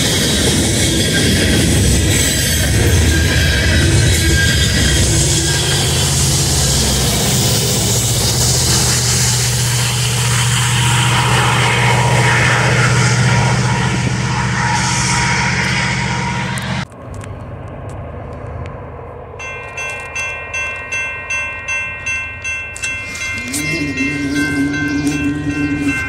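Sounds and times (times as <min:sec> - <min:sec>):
diesel locomotive engines roaring: 0:00.0 - 0:26.0
chiming music: 0:19.4 - 0:26.0.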